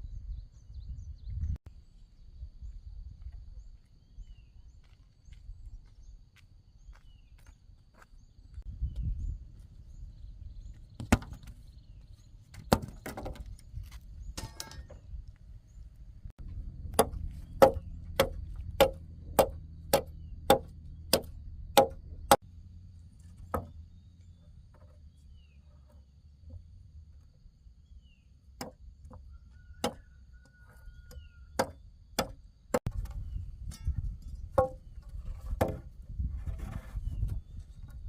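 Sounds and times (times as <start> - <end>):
low rumble: 15.8 - 24.7
chopping blows on wood: 16.9 - 22.4.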